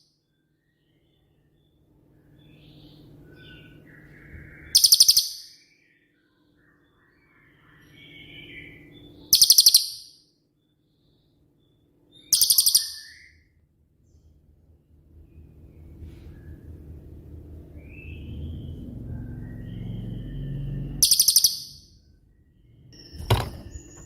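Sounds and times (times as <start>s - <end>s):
faint low hum: 0.0s - 24.0s
soft bird chirps: 0.0s - 24.0s
bird high-pitched rapid trills: 0.8s - 10.2s, 11.7s - 13.6s, 17.8s - 24.0s.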